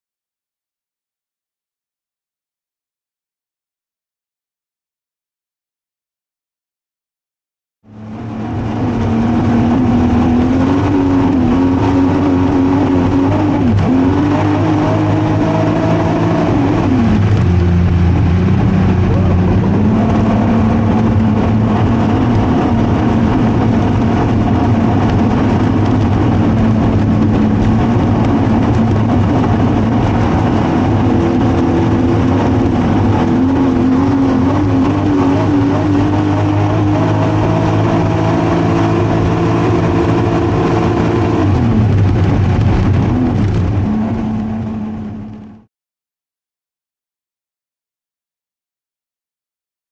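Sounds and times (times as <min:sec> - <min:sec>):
car engine running loudly: 0:07.8 - 0:45.7.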